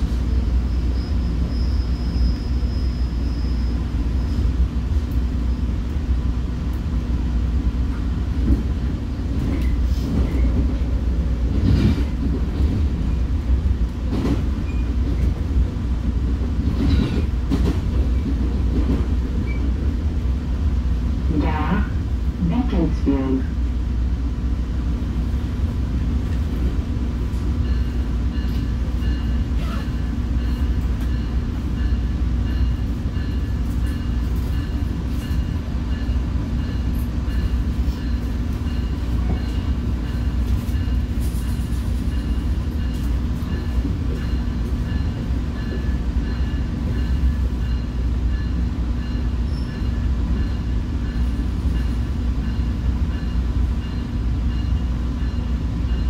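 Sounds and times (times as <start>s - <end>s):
train low rumble: 0.0s - 56.0s.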